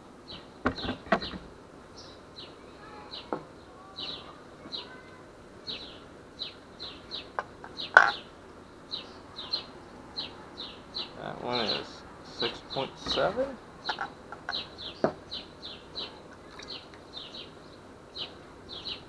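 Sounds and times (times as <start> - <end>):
bird chirping: 0.3 - 19.0
handling knocks: 13.0 - 14.1.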